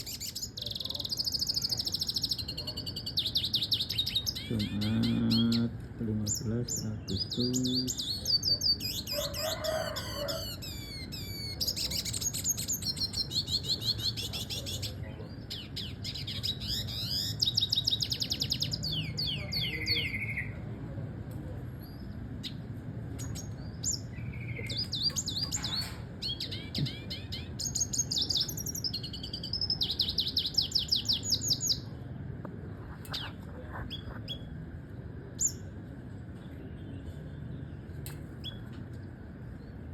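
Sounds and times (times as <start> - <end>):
bird singing high twittering trills: 0.0 - 20.5, 23.2 - 31.9.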